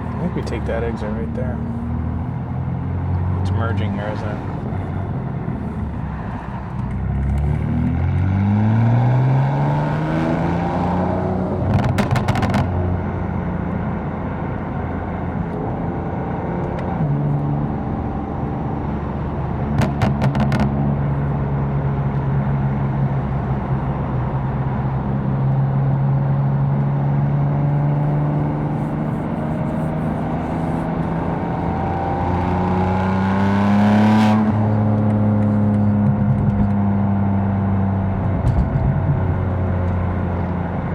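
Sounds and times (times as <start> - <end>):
car engine accelerating hard: 0.0 - 40.9.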